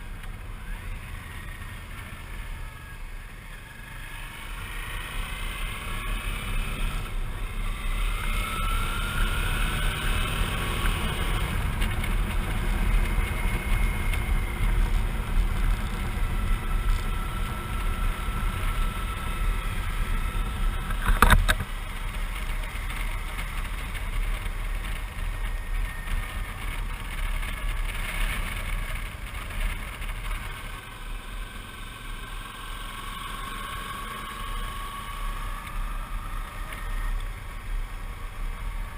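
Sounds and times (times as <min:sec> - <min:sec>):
faint whine: 0:00.0 - 0:38.9
motorcycle engine running: 0:00.0 - 0:38.9
wind and road noise: 0:00.0 - 0:38.9.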